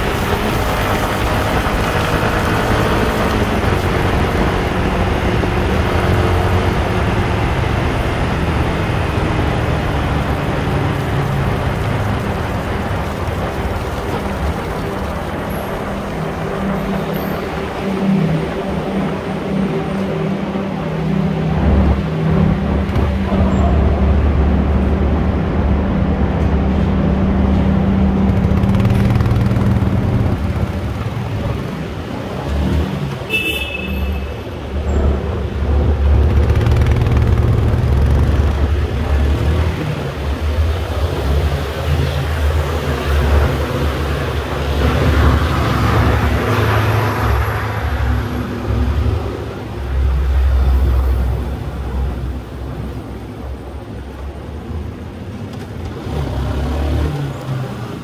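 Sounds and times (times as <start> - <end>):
motorcycle engine running: 26.6 - 32.3, 34.8 - 41.2.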